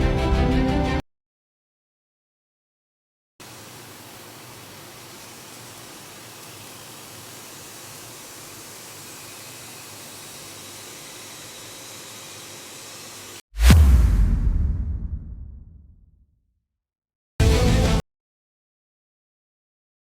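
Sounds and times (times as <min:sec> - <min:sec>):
steady even hiss: 0:03.4 - 0:13.4
loud deep ringing hit: 0:13.6 - 0:15.8.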